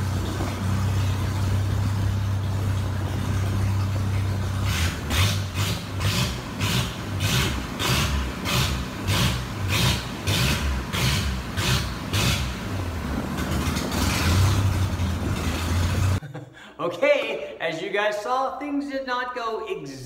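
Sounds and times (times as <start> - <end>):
car engine pulsing on a dyno: 0.0 - 16.2.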